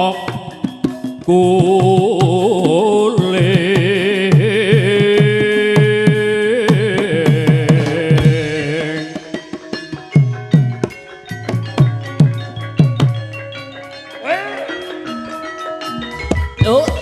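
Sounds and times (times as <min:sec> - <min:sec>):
person singing long notes: 0:00.0 - 0:09.6
ringing metallophones: 0:00.0 - 0:17.0.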